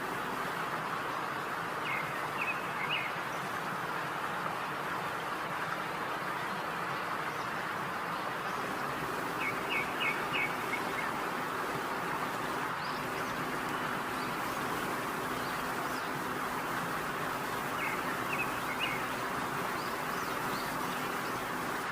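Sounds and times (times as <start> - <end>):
steady hiss: 0.0 - 21.9
high bird-like chirps: 17.4 - 21.4.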